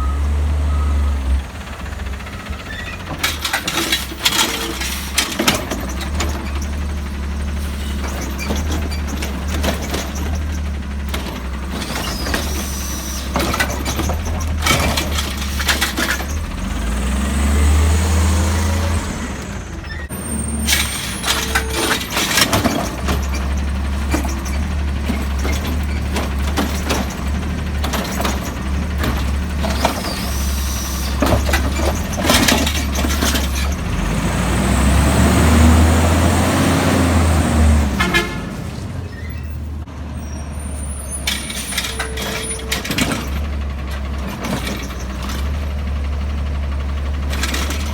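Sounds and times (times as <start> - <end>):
garbage truck engine revving: 0.0 - 47.9
clanks and clatter: 2.2 - 16.9, 19.4 - 34.2, 41.2 - 47.9.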